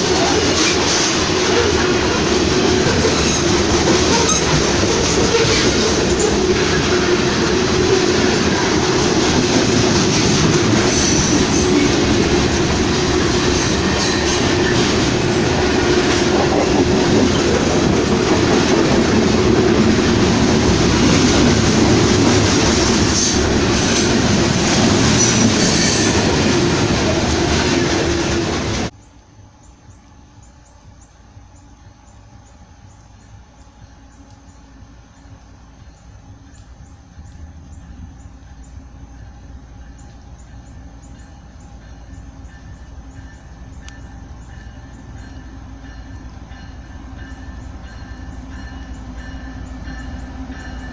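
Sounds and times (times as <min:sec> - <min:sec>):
high wheel squeals: 0:00.0 - 0:09.2, 0:10.0 - 0:17.5
train wheels rushing on rail: 0:00.0 - 0:29.0, 0:31.8 - 0:50.9.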